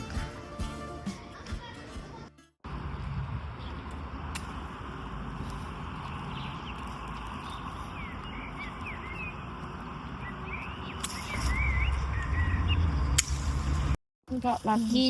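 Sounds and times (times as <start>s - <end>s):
small birds chirping: 5.7s - 13.2s.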